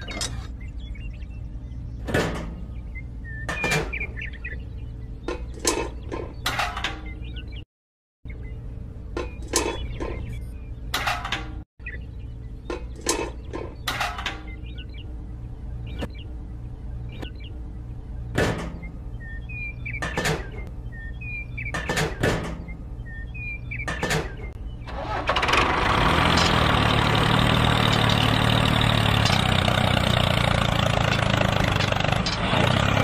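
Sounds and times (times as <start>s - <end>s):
sharp clicks with squeaks: 3.3s - 4.5s, 5.2s - 7.6s, 9.1s - 11.6s, 12.6s - 14.8s, 19.7s - 20.7s, 21.3s - 25.4s, 29.1s - 29.8s, 30.9s - 32.6s.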